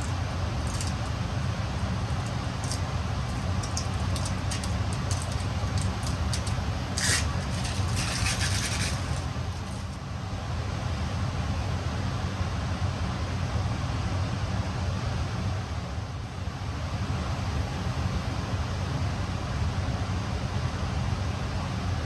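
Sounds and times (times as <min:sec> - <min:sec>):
decal scraping on panel: 0:00.0 - 0:10.0.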